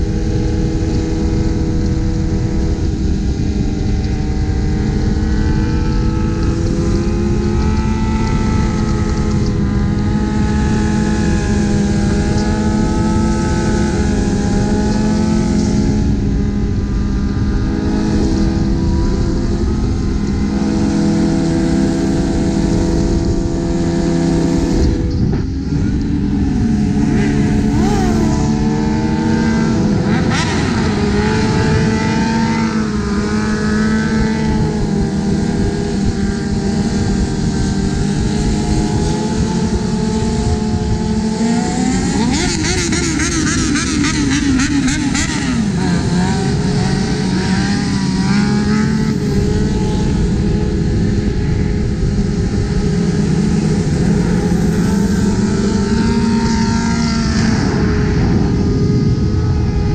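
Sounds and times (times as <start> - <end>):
motorcycle engines revving: 0.0 - 59.9
rushing wind noise: 0.0 - 59.9.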